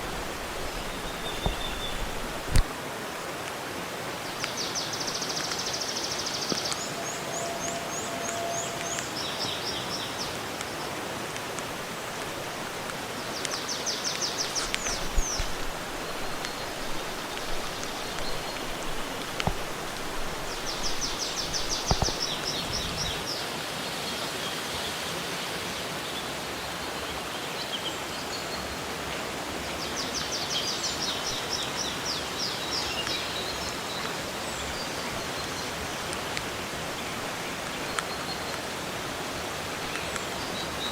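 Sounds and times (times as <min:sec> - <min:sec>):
falling and running water: 0:00.0 - 0:07.9, 0:08.8 - 0:25.6
sharp clicks: 0:00.2 - 0:02.7, 0:14.4 - 0:22.6.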